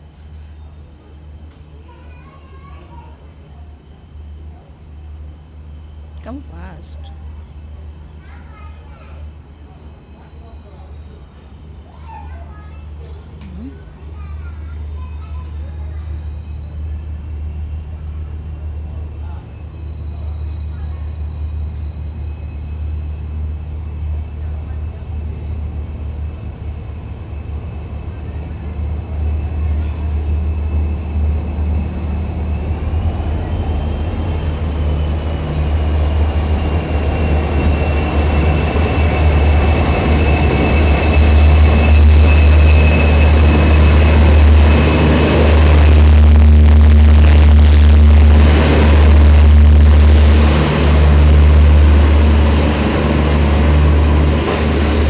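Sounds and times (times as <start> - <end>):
locomotive engine rumble: 13.2 - 55.0
train rattling clatter: 14.3 - 55.0
high whine: 26.4 - 55.0.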